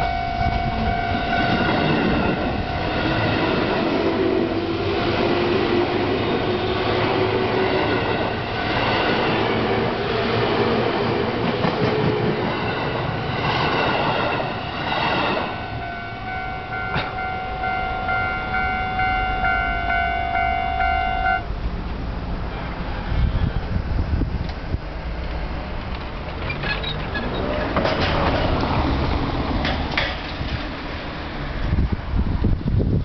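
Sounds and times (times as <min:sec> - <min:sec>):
electric train passing: 0:00.0 - 0:33.0
level-crossing bell ringing: 0:14.4 - 0:21.4.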